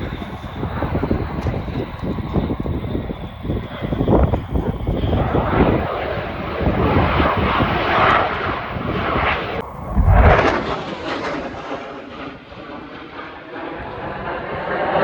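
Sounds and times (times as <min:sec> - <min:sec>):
aircraft engine roar: 0:00.0 - 0:15.0
heavy low thump: 0:09.8 - 0:10.6.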